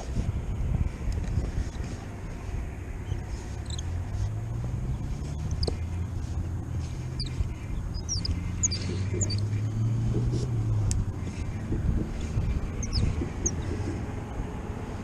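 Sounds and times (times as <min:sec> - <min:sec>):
steady low hum: 0:00.0 - 0:15.0
small birds chirping: 0:00.6 - 0:15.0.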